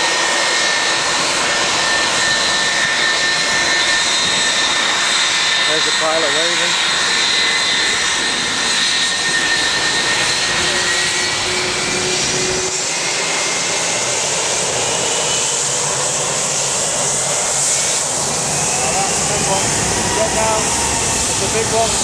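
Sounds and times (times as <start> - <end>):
jet engines whining: 0.0 - 22.0.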